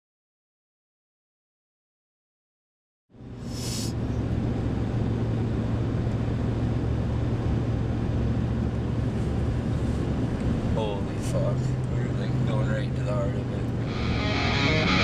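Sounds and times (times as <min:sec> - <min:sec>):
car engine and road noise: 0:03.1 - 0:15.0
brief hiss: 0:03.4 - 0:04.0.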